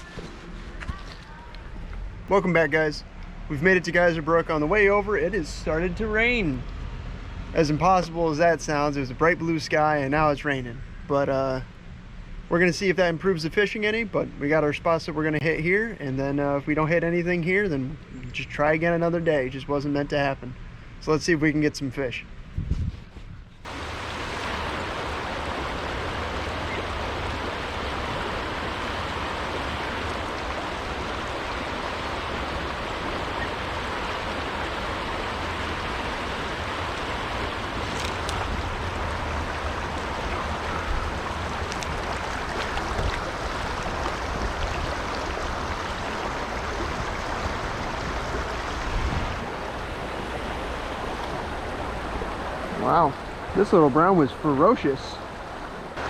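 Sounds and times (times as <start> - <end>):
creek water flowing: 0.0 - 10.7, 23.6 - 56.0.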